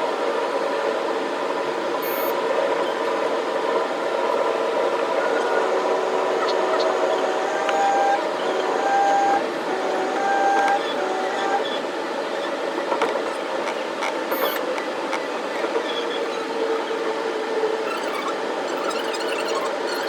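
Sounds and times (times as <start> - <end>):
short steady tones: 2.0 - 2.4.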